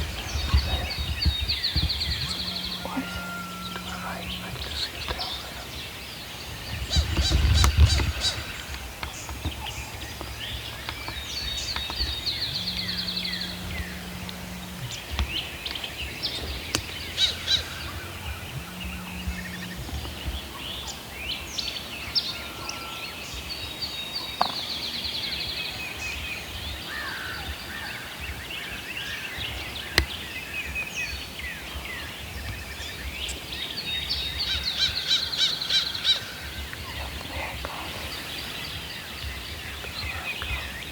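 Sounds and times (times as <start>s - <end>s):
songbirds chirping: 0.0s - 40.9s
turkey gobbling: 2.2s - 5.5s.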